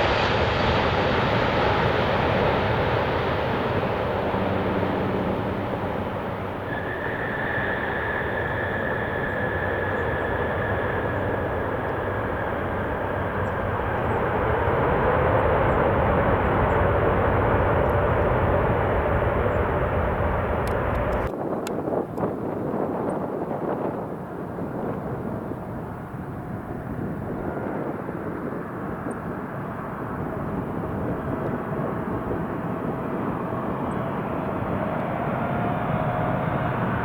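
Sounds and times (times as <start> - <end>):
high whine: 0.0 - 21.3
jet engines roaring: 0.0 - 37.0.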